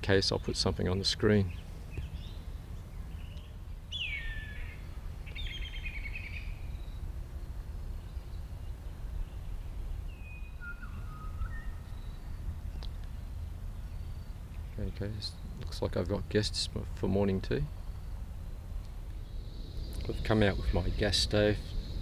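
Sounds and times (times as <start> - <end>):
birds whistling and warbling: 0.3 - 15.7
steady low rumble: 11.7 - 22.0.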